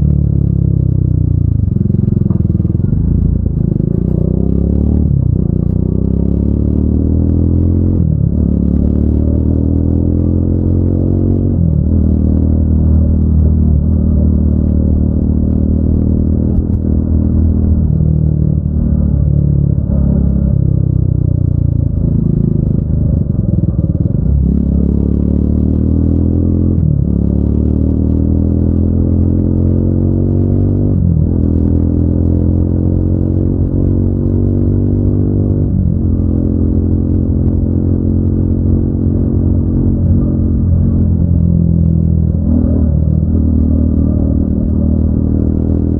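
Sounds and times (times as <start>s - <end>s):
motorcycle engine and exhaust: 0.0s - 45.9s.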